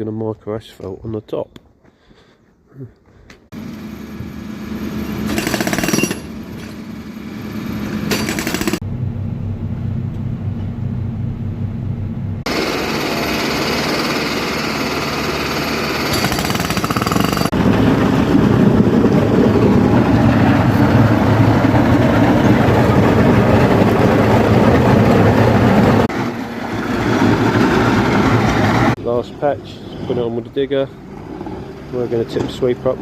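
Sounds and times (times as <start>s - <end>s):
road-works machinery rattling: 3.5s - 8.8s, 12.5s - 33.0s.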